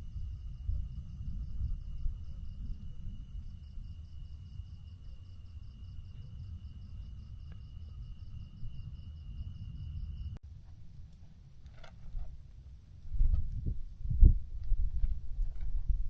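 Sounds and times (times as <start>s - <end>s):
pulsing insect chirp: 0.0s - 10.4s
low wind rumble: 0.0s - 16.0s.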